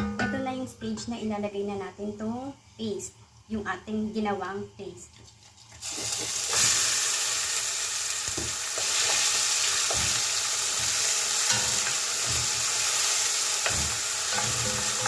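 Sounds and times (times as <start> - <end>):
paste sizzling in hot oil: 5.3 - 15.0
spoon knocking and scraping pot: 8.4 - 15.0.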